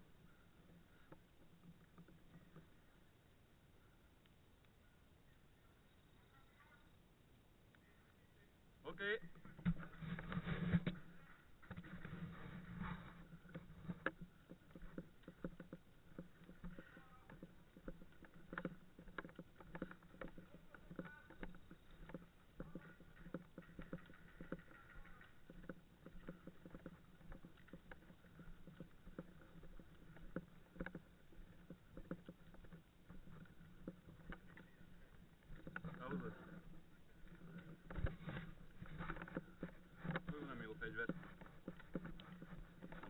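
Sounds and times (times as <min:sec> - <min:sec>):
handling clicks and knocks: 0:09.3 - 0:43.0.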